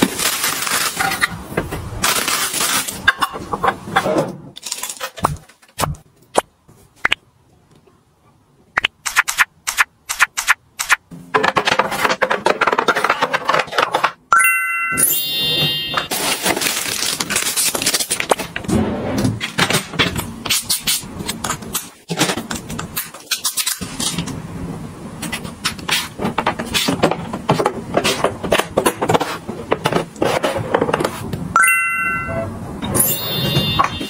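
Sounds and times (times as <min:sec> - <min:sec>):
plastic packaging crinkling: 0:00.0 - 0:01.3, 0:02.0 - 0:03.1, 0:04.6 - 0:05.7, 0:16.1 - 0:18.6.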